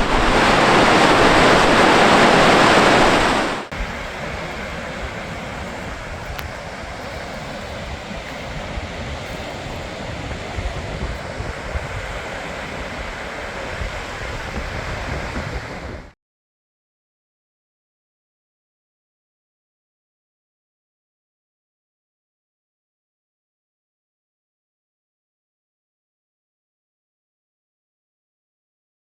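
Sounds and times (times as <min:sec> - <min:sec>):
waterfall rushing: 0:00.0 - 0:16.0
wind buffeting microphone: 0:00.0 - 0:16.2.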